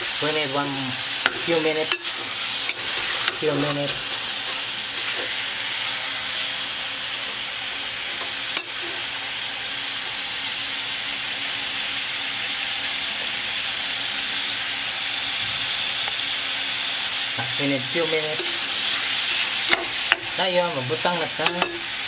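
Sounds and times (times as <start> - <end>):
meat and onions sizzling in a pot: 0.0 - 22.0
metal spoon stirring: 1.2 - 5.3, 21.4 - 21.9.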